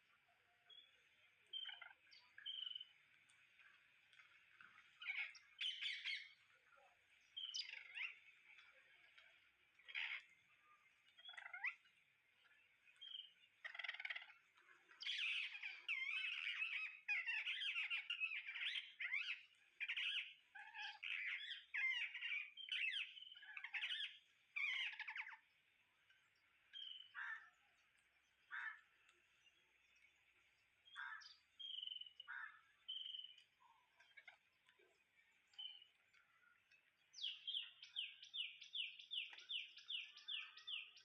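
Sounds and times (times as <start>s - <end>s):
parrots squawking and chattering: 1.5s - 2.8s, 5.0s - 6.4s, 7.4s - 8.2s, 9.8s - 10.3s, 11.1s - 11.9s, 13.0s - 25.5s, 26.7s - 27.5s, 28.5s - 28.9s, 30.9s - 33.2s.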